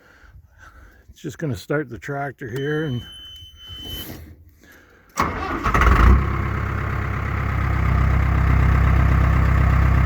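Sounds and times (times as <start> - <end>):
tractor starter cranking: 5.1 - 6.6
tractor engine idling: 5.1 - 10.0.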